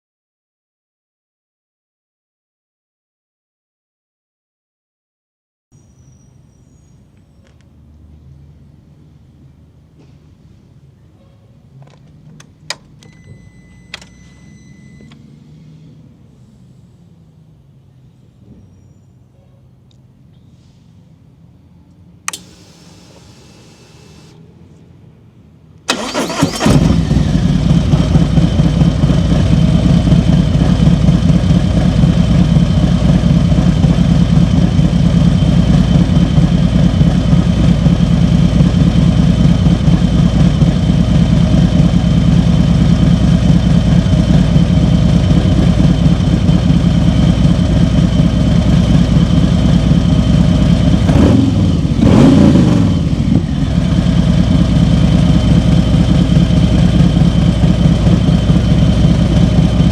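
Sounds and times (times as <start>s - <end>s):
motorcycle engine idling: 22.3s - 24.4s, 26.0s - 52.0s, 52.9s - 59.9s.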